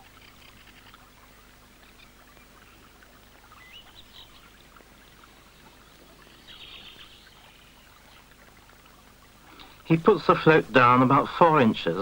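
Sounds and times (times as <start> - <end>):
faint bird chirps: 0.0 - 8.3
low steady hiss: 0.0 - 12.0
bird trill: 3.5 - 4.5.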